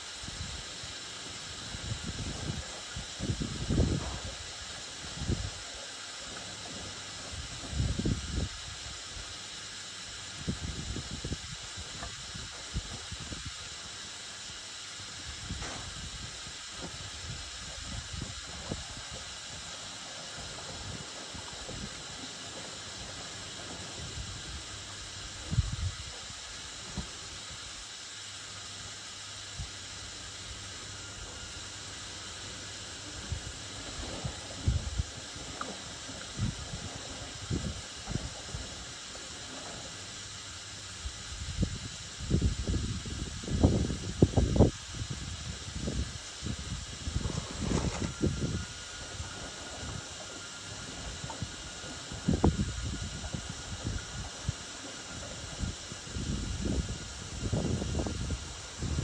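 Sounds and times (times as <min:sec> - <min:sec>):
washing machine hissing: 0:00.0 - 0:59.0.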